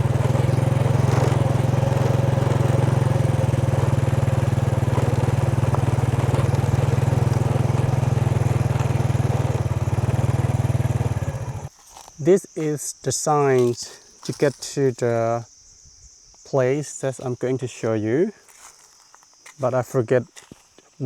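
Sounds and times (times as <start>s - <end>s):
motorbike engine running: 0.0s - 11.7s.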